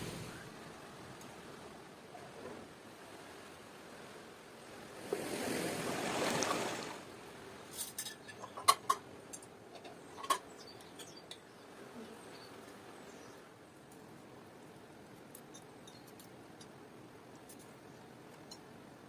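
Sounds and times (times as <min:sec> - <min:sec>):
dishes clinking: 0:07.8 - 0:09.1, 0:09.7 - 0:11.4.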